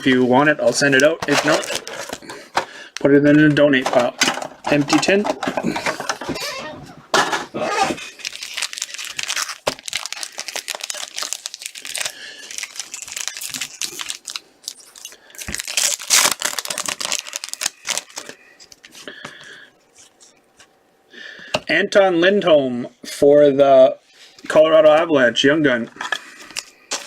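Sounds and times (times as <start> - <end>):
wrappers torn open and crinkled: 1.3 - 2.3, 7.6 - 18.9.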